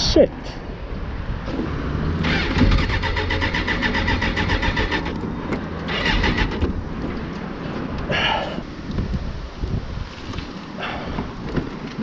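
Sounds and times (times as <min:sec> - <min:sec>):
motorcycle starter cranking engine: 0:02.2 - 0:05.2, 0:05.9 - 0:06.8.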